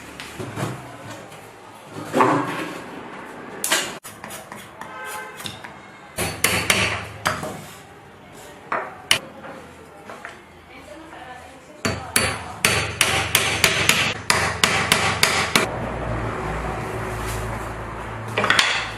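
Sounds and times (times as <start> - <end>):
hammer striking wood: 6.2 - 7.6, 11.8 - 15.7.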